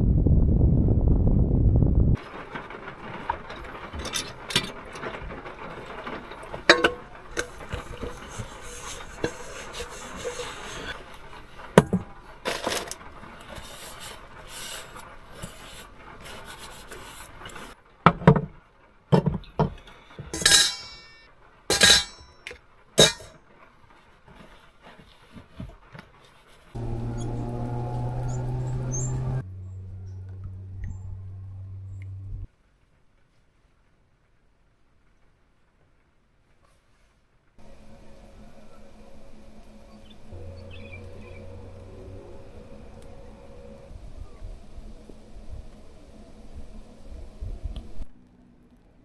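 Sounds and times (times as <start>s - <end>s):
steady hiss: 2.2s - 17.7s, 37.6s - 48.1s
loud low rumble: 26.8s - 32.5s, 37.6s - 48.1s.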